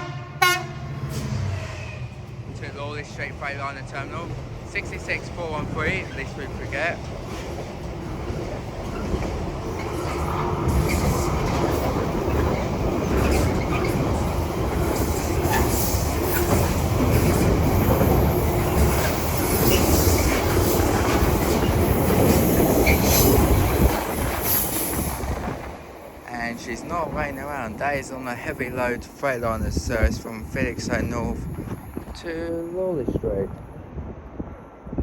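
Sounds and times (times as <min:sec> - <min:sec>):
freight train passing: 0:00.0 - 0:35.0
wagons clicking over rail joints: 0:03.3 - 0:30.6.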